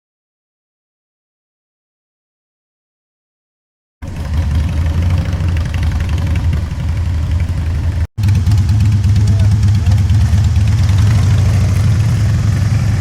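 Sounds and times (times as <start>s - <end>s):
motorcycle engine idling: 4.0s - 13.0s.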